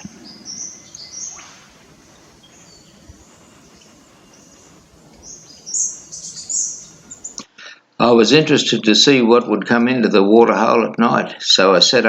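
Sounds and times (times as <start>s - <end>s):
birds chirping: 0.0s - 7.5s
faint steady hiss: 0.0s - 12.0s.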